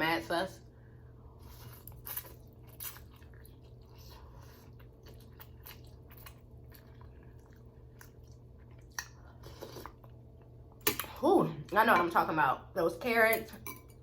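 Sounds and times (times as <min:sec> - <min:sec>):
chewing with soft mouth clicks: 0:01.5 - 0:10.5.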